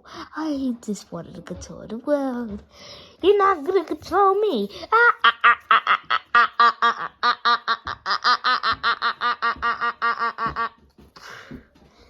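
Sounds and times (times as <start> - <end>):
cartoon character laughing: 4.9 - 10.8.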